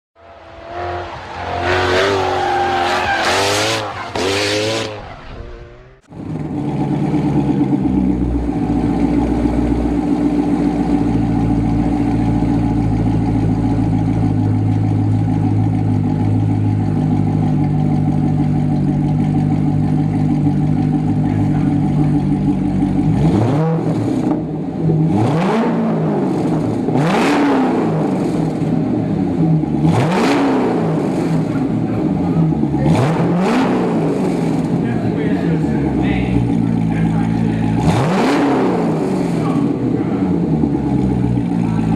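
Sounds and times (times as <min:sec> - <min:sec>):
car engine revving and idling: 0:00.2 - 0:41.9.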